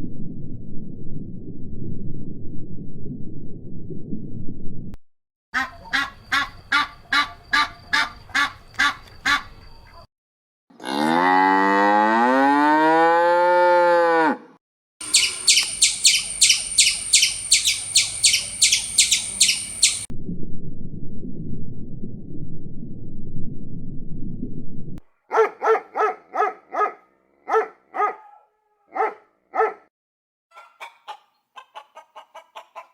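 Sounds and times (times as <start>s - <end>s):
low rumble: 0.0s - 5.0s, 19.2s - 25.0s
cow mooing: 10.8s - 14.5s
high sharp calls: 15.0s - 20.1s
short repeated animal calls: 15.0s - 20.1s.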